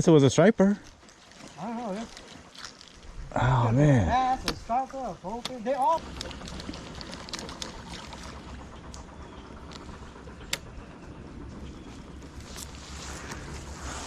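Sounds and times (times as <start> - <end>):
low rumble and hiss: 0.0 - 14.0
sharp clicks: 5.3 - 10.8.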